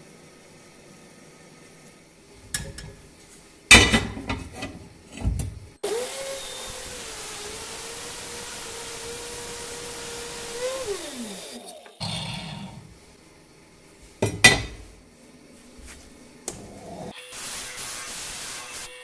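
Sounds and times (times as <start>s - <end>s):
metal pieces clanking: 2.5s - 3.1s, 3.7s - 5.6s, 14.2s - 15.0s
power tool motor running: 5.8s - 11.9s.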